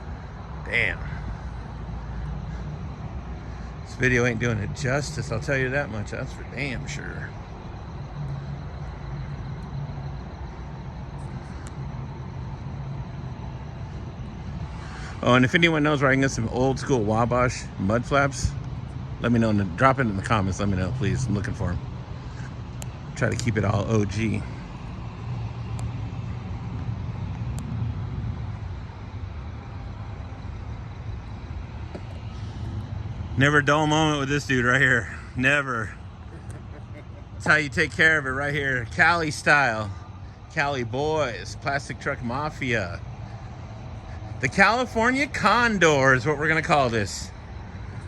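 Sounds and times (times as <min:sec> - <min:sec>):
traffic hiss: 0:00.0 - 0:48.0
truck engine rumbling: 0:00.0 - 0:48.0.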